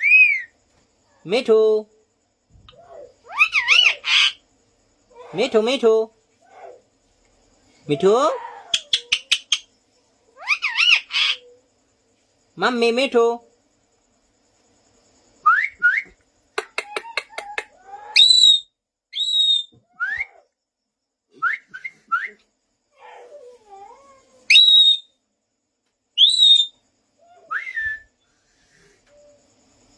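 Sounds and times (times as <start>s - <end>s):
low wavering parrot call: 2.7s - 4.4s, 10.4s - 11.6s, 16.8s - 20.5s, 23.8s - 25.1s, 26.2s - 28.1s
parrot whistling: 18.2s - 20.4s, 24.5s - 25.1s, 26.2s - 26.8s.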